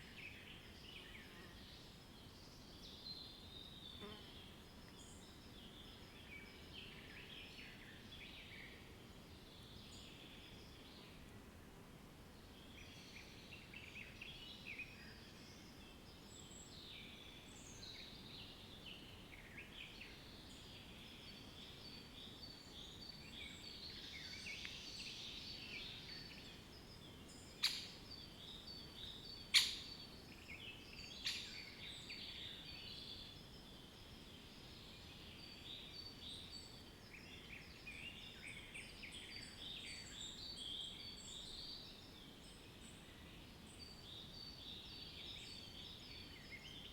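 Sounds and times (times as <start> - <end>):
background hiss: 0.0 - 46.9
small birds chirping: 12.6 - 46.9.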